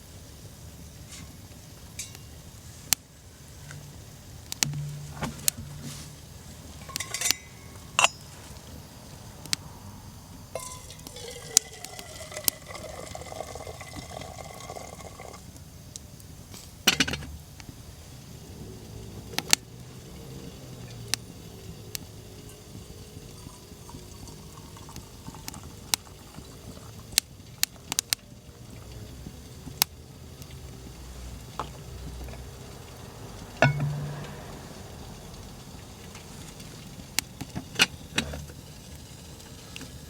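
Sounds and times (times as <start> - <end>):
sharp clicks and knocks: 3.7 - 8.2
water pouring into a container: 10.6 - 15.5, 22.6 - 29.2.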